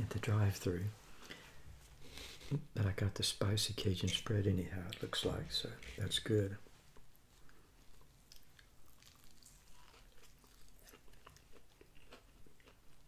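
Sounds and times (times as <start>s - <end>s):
person chewing a sandwich: 6.9s - 13.0s.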